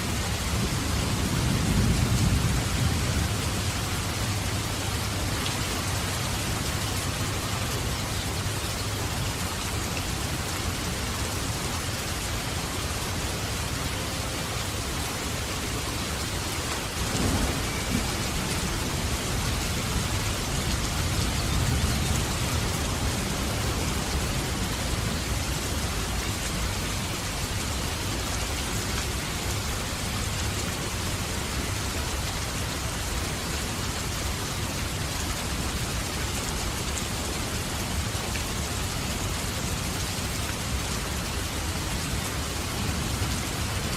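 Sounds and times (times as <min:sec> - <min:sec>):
heavy rain: 0:00.0 - 0:43.9
thunder crack and rolling rumble: 0:17.0 - 0:25.8.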